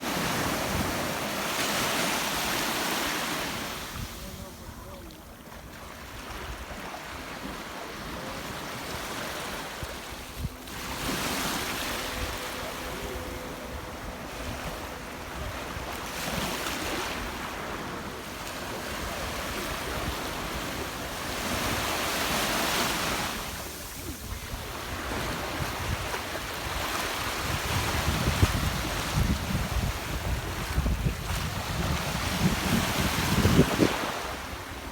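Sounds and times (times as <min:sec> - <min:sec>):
sea waves washing in: 0:00.0 - 0:04.6, 0:05.6 - 0:34.9
wind buffeting microphone: 0:08.9 - 0:34.9.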